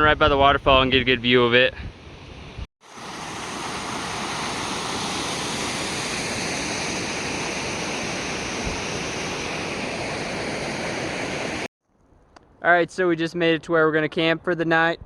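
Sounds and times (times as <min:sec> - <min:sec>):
waterfall rushing: 0:02.9 - 0:11.7.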